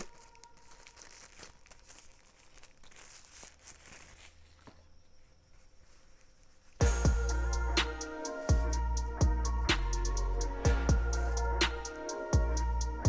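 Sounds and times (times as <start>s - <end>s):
packaging rustling and crinkling: 0.0s - 6.8s.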